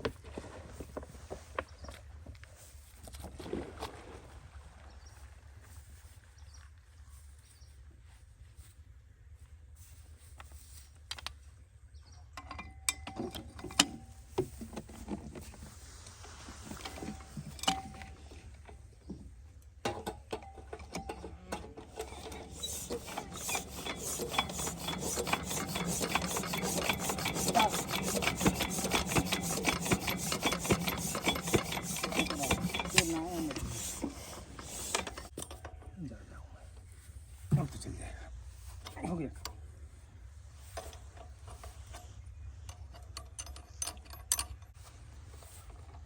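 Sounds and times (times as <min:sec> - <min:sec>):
knocks and clicks on machinery: 0:19.8 - 0:35.8
rapid clicks and rasping rubs: 0:21.8 - 0:35.4.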